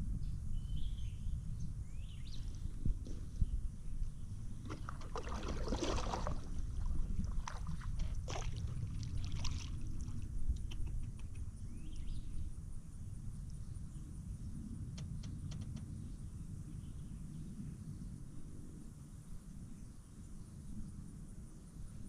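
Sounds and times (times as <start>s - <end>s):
low rumble: 0.0s - 18.1s
paddle splashing in water: 4.6s - 10.2s.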